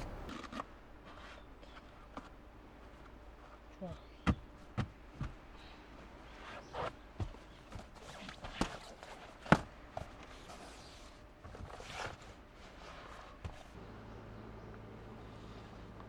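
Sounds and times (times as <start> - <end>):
low steady hum: 0.0 - 0.3, 13.8 - 16.0.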